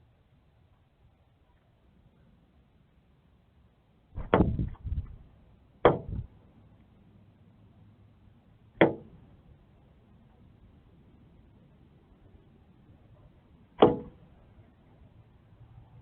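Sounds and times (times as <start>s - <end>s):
bird knocking against window glass: 5.9s - 6.3s.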